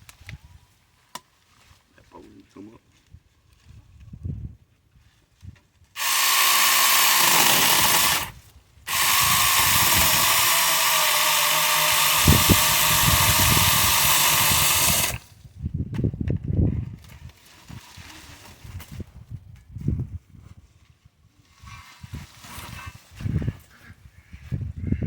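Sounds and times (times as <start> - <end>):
mini chainsaw cutting brush: 6.0 - 15.3.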